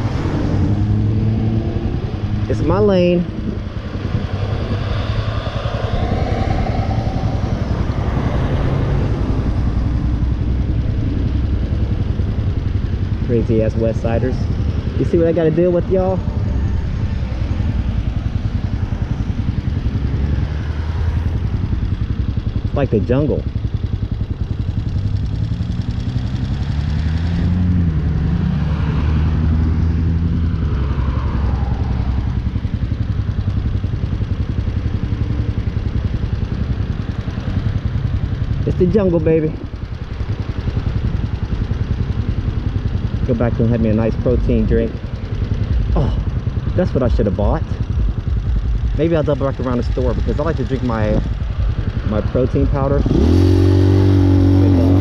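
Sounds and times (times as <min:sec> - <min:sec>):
motorcycle engine running: 0:00.0 - 0:55.0
riding wind noise: 0:00.0 - 0:55.0.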